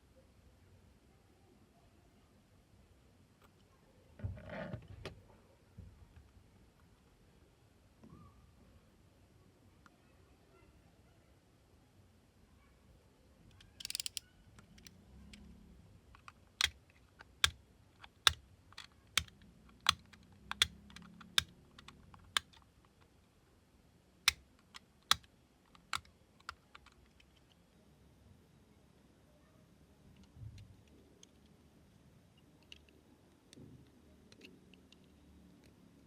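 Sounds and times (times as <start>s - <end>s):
sharp clicks: 13.5s - 15.0s, 17.4s - 22.6s, 24.3s - 27.0s.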